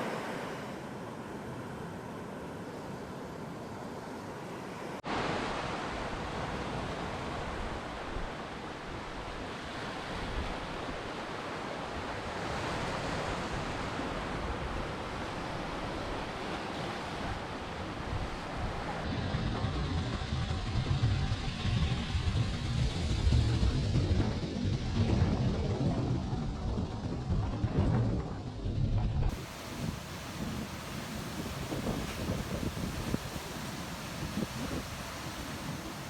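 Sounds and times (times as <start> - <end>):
ocean surf washing: 0.0 - 19.6, 29.3 - 36.0.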